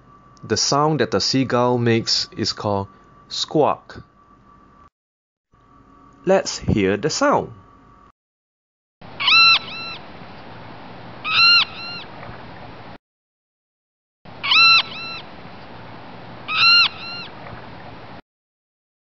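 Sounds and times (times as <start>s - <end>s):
steady background hiss: 0.0s - 4.2s
seagull squawks: 9.2s - 10.0s, 11.2s - 12.1s, 14.4s - 15.3s, 16.5s - 17.4s.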